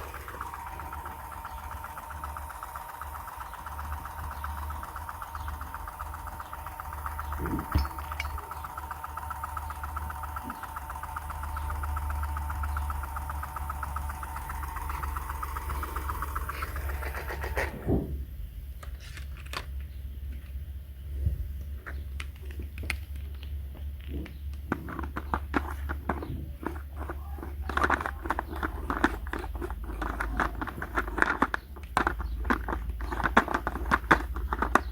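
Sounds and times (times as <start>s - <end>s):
small electric motor humming: 0.0s - 18.1s, 24.9s - 34.9s.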